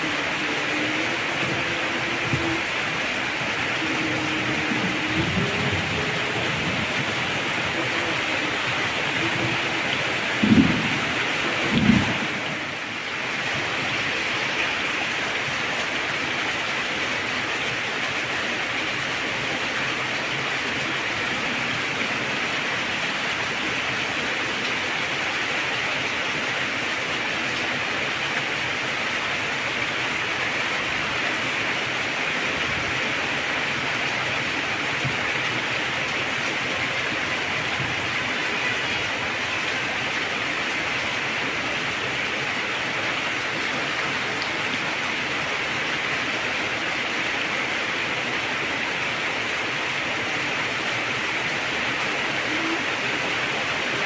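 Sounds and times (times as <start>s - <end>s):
heavy rain downpour: 0.0s - 54.0s
thunder rolling: 0.2s - 12.8s.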